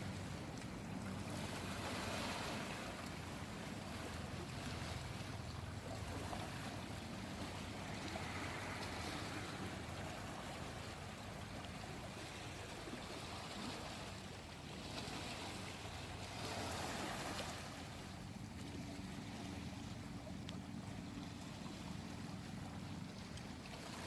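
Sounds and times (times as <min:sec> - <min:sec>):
steady low hum: 0:00.0 - 0:14.7
small waves lapping on shore: 0:00.0 - 0:24.0.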